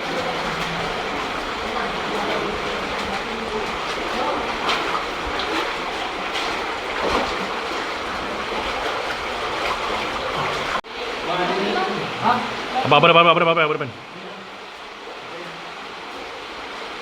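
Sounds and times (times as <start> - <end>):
underground stream rushing: 0.0 - 17.0
faint voices: 11.2 - 15.8.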